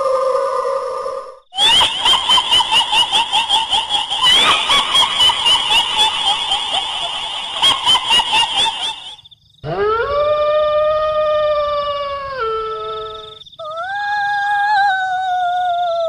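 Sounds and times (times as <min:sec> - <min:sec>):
shrill cackling laugh: 0:01.6 - 0:09.2.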